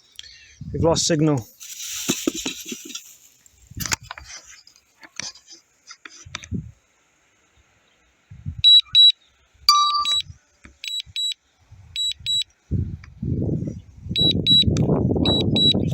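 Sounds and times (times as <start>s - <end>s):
wind gusts on microphone: 0.6s - 1.1s, 6.2s - 6.8s, 8.3s - 8.7s, 11.7s - 15.9s
high double warning beeps: 8.6s - 11.4s, 12.0s - 12.4s, 14.2s - 15.9s.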